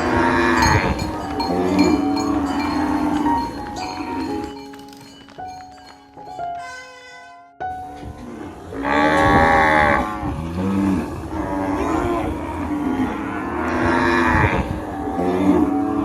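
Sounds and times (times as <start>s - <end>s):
cattle mooing: 0.0s - 4.0s, 8.2s - 16.0s.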